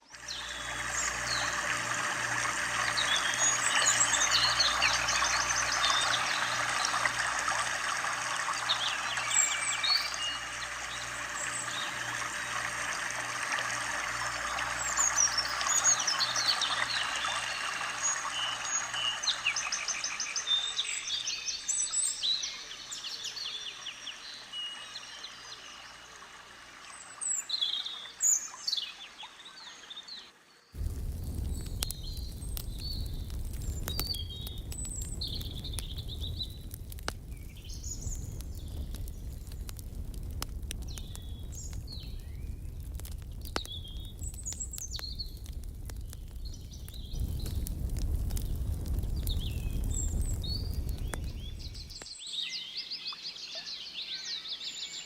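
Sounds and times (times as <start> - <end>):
birds chirping and trilling: 0.0 - 30.8, 31.4 - 39.8, 40.8 - 55.0.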